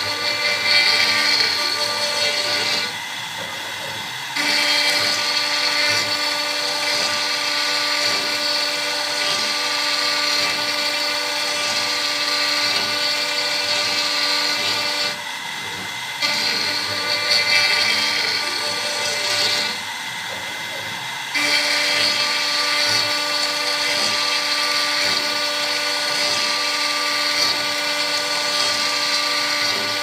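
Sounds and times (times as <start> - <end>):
router spindle high whine: 0.0 - 30.0.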